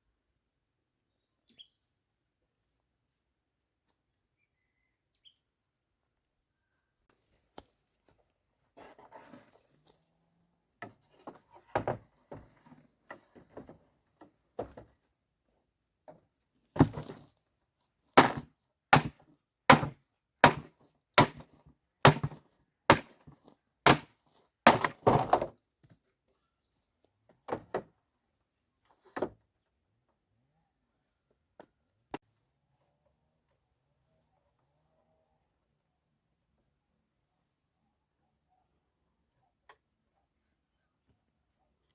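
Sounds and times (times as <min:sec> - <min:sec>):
sharp strikes on wood: 0:18.2 - 0:24.1, 0:24.7 - 0:25.4.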